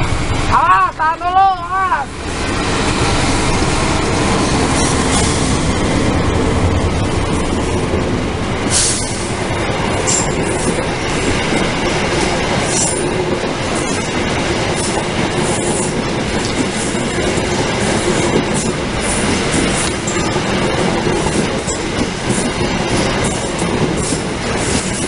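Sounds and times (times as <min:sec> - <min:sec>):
train wheels rumbling on rails: 0:00.0 - 0:25.0
sharp rail clicks: 0:08.5 - 0:25.0.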